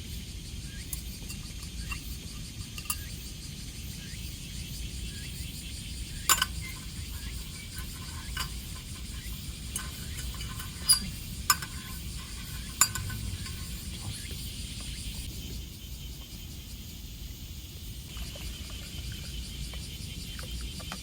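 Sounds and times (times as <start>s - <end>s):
metal utensils clinking on cookware: 0.9s - 3.2s, 6.1s - 14.3s.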